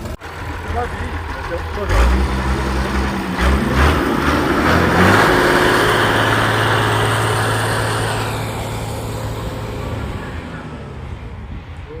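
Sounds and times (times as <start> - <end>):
tractor engine running hard: 0.0 - 12.0.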